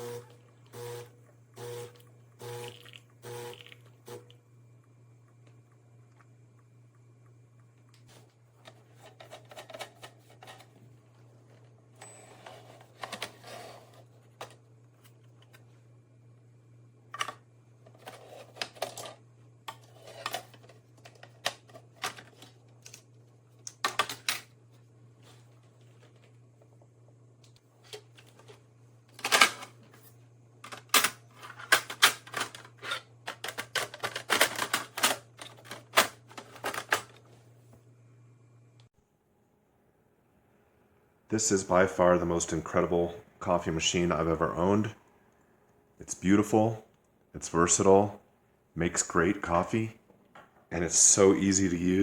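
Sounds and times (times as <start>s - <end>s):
objects clicking and rustling: 7.9s - 10.9s, 27.8s - 37.3s.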